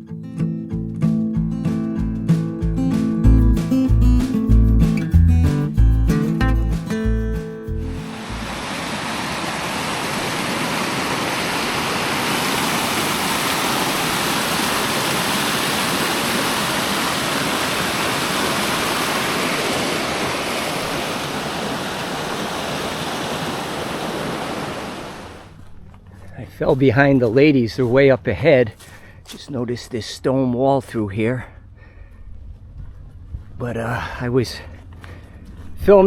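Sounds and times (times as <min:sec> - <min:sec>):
stream rushing over rocks: 0:07.9 - 0:25.5.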